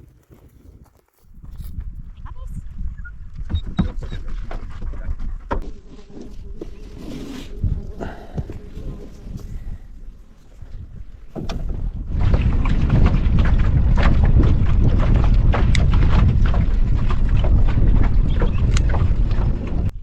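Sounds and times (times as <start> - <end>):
wind buffeting microphone: 0.0 - 20.0
boat engine rumble: 5.6 - 20.0
water slapping against hull: 11.2 - 19.9.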